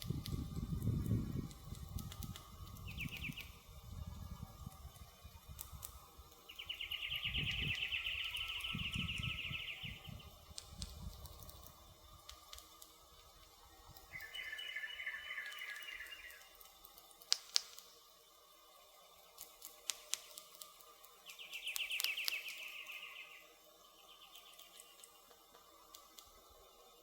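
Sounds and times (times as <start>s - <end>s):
campfire crackling: 0.0s - 23.4s
bird trilling: 6.5s - 10.2s, 14.1s - 16.5s
firewood popping: 16.7s - 17.9s.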